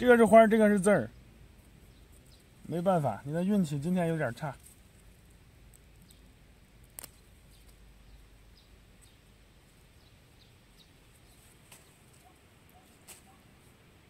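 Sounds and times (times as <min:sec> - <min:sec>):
faint bird chirps: 0:07.1 - 0:13.5.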